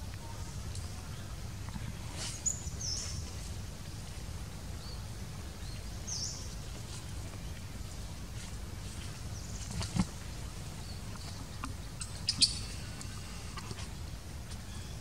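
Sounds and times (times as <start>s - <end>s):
bird chirps: 12.0s - 13.4s.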